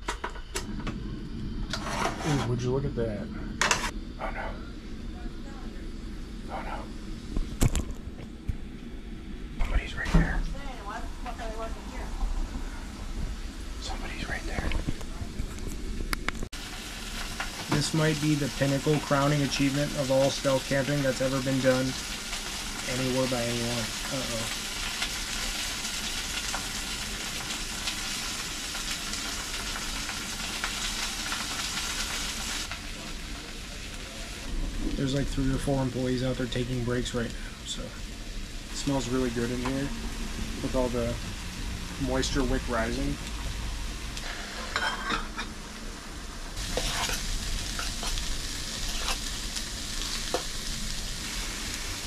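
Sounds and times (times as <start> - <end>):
utensil scraping a pot: 1.6 - 2.6, 46.6 - 48.2, 48.8 - 49.3
sausages sizzling: 8.7 - 52.0.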